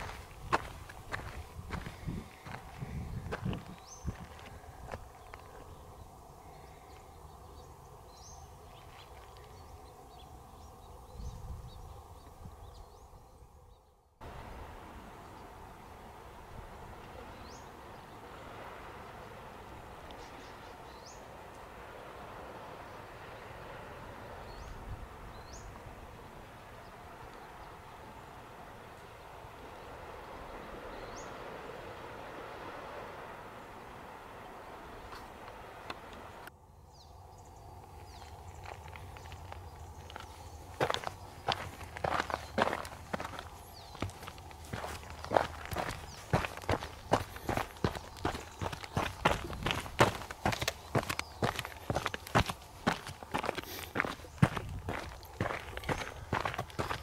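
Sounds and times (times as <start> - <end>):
small birds chirping: 0.0 - 14.1, 20.0 - 21.6, 22.8 - 28.0, 30.8 - 31.4, 35.0 - 57.0
outdoor background noise: 0.0 - 57.0
bird chirping: 36.8 - 57.0.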